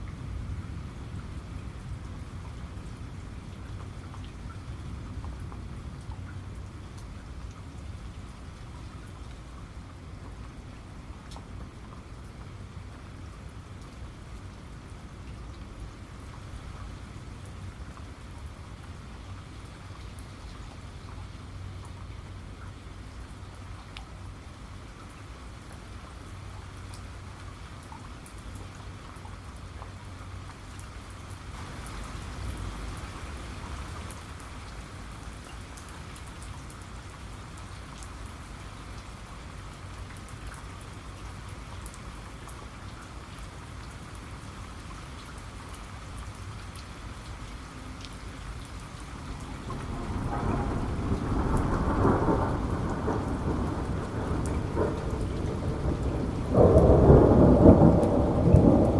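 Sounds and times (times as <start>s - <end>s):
heavy rain falling: 0.0s - 58.9s
thunder rumbling: 49.3s - 58.9s.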